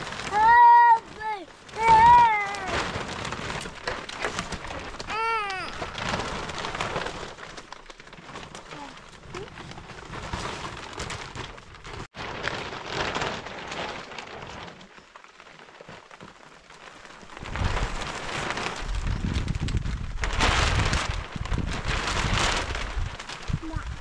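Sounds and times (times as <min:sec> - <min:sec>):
rain falling: 0:00.0 - 0:10.1, 0:10.8 - 0:24.0
wind buffeting microphone: 0:17.4 - 0:24.0.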